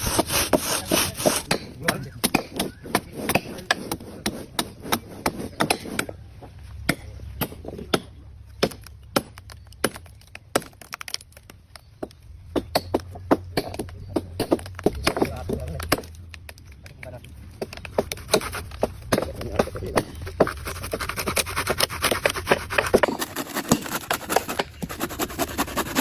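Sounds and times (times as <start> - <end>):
hand tool chopping wood: 0.0 - 6.2, 12.6 - 16.2, 17.6 - 26.0.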